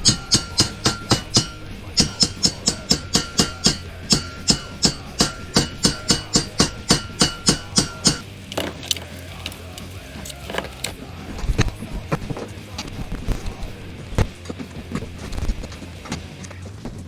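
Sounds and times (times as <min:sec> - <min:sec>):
chipping hammer striking metal: 0:00.0 - 0:10.9.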